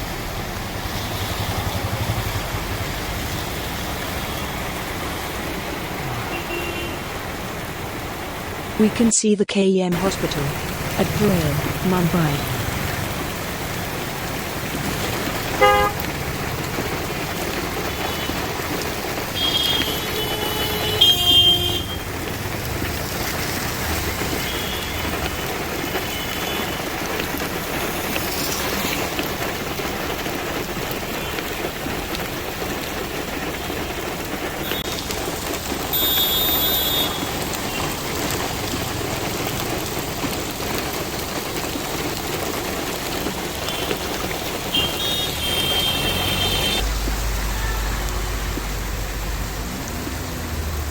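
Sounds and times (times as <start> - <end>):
heavy rain on street: 0.0 - 9.1, 9.9 - 50.9
road traffic: 0.0 - 50.9
vehicle horn toots: 6.3 - 7.0, 15.6 - 16.0, 19.4 - 22.0, 35.9 - 37.8, 44.7 - 46.8.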